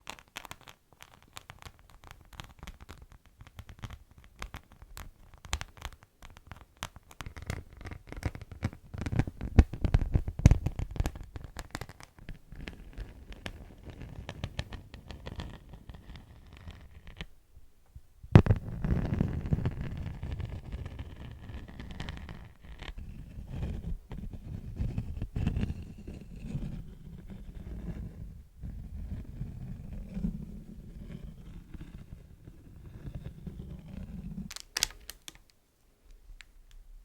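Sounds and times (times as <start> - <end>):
wax wraps crinkling: 33.6 - 36.9.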